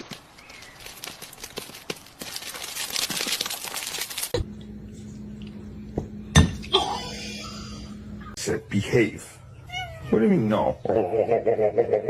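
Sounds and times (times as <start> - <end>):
crinkling material rustling: 0.0 - 4.4
steady low hum: 4.3 - 9.7.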